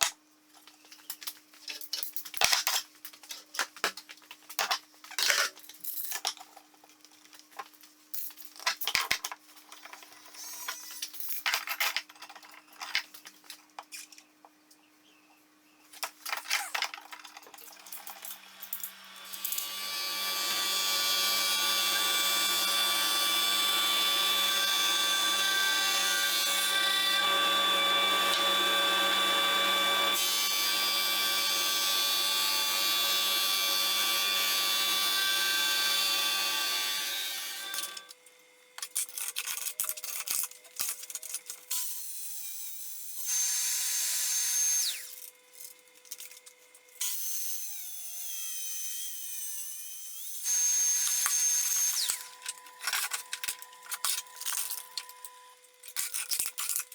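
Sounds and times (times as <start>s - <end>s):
electric power tool running: 17.8s - 38.1s, 47.0s - 52.4s.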